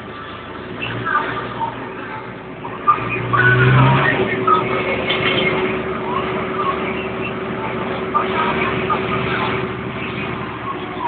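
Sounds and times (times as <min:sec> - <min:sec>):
tractor engines running: 0:00.0 - 0:11.0.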